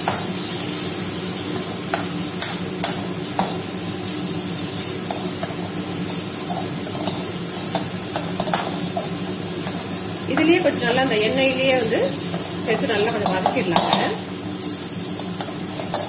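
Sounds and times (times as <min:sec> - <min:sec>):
food sizzling in oil: 0:00.0 - 0:16.0
spatula scraping and tapping pan: 0:01.4 - 0:03.7, 0:04.8 - 0:11.1, 0:12.2 - 0:16.0.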